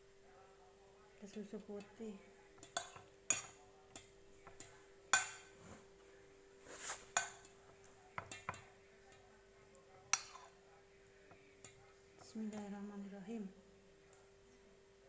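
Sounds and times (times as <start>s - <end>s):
spoon clinking against dish: 2.6s - 5.6s, 7.1s - 8.7s, 10.1s - 10.6s
spoon scraping dish: 6.6s - 7.6s.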